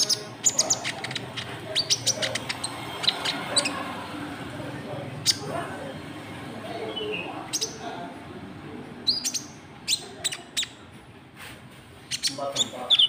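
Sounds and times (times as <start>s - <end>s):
small bird chirping: 0.0s - 4.1s, 5.2s - 5.5s, 6.7s - 7.8s, 9.0s - 10.9s, 12.0s - 13.0s
faint voices: 0.0s - 13.0s.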